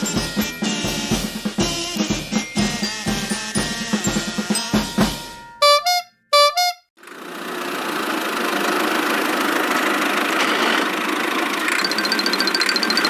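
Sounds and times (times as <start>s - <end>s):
drum kit beat: 0.0s - 6.8s
cartoon vehicle horn honks: 5.3s - 6.9s
vehicle engine running: 7.0s - 13.0s.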